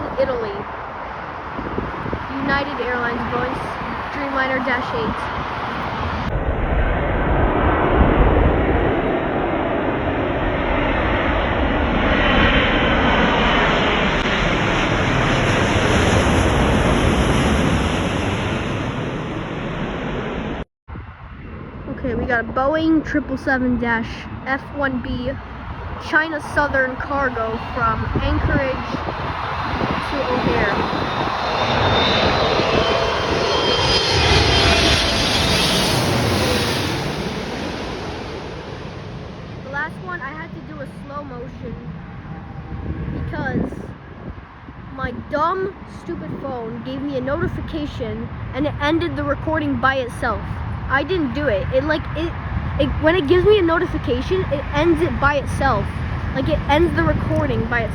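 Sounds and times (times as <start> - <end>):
jet airliner engines rumbling: 0.0 - 57.9
thin engine whine: 25.5 - 39.8.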